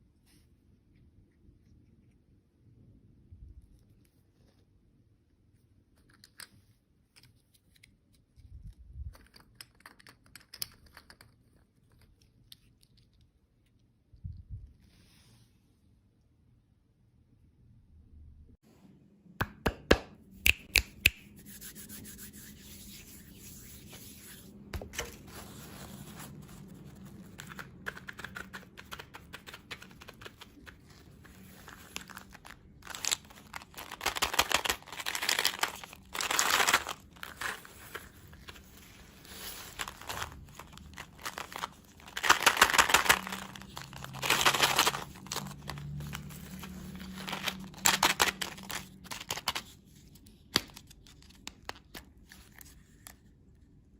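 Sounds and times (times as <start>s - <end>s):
plastic wrapper crinkling: 25.0s - 49.7s.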